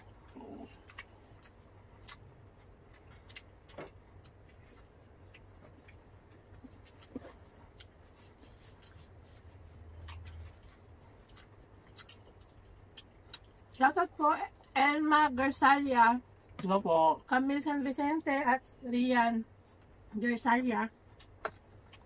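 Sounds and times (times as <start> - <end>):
steady low hum: 0.0 - 22.0
chewing clicks and smacks: 0.2 - 13.8, 21.0 - 22.0.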